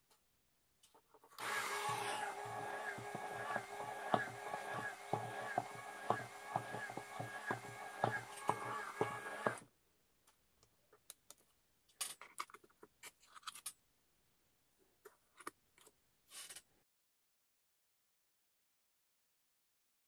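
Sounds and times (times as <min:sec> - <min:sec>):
small electric motor whirring: 0:01.4 - 0:09.6.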